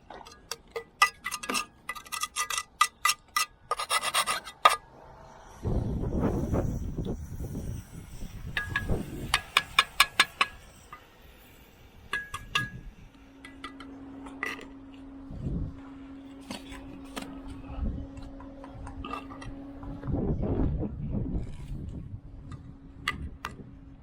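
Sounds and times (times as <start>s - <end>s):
steel trowel tapping on brick: 0.3s - 4.8s, 8.5s - 10.9s, 12.1s - 12.8s.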